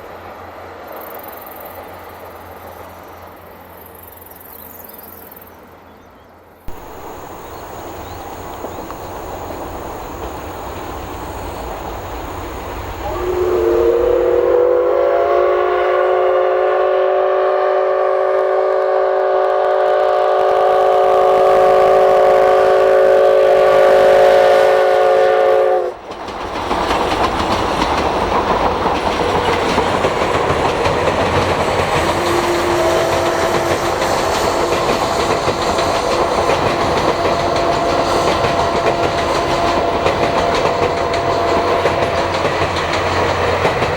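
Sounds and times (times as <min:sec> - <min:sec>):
steam train running on rails: 0:00.0 - 0:05.9, 0:06.5 - 0:43.9
steam locomotive whistle: 0:06.7 - 0:26.0, 0:29.2 - 0:43.8.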